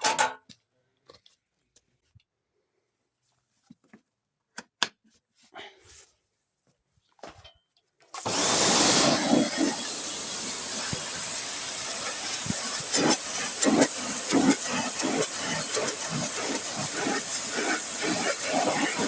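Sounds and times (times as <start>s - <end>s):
pressure washer spraying: 8.2s - 19.0s
water jet spattering: 8.2s - 19.0s.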